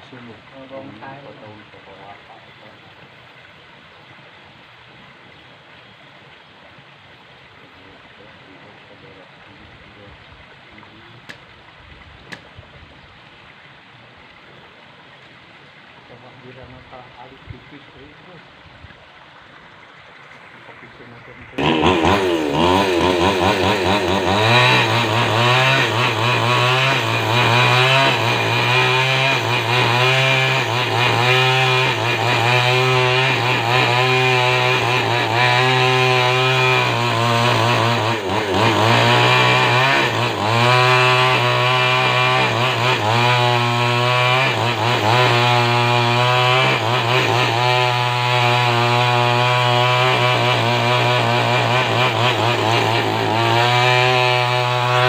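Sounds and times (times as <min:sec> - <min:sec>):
chainsaw sawing wood: 0:00.0 - 0:02.9, 0:10.9 - 0:11.5, 0:12.3 - 0:12.5, 0:20.6 - 0:55.0.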